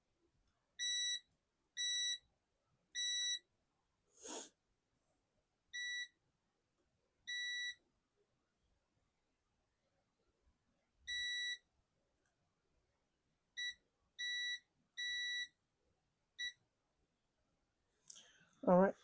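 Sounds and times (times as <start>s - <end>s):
multimeter beeps: 0.8s - 2.3s, 3.0s - 3.4s, 5.8s - 6.2s, 7.3s - 7.8s, 11.1s - 11.6s, 13.6s - 15.6s.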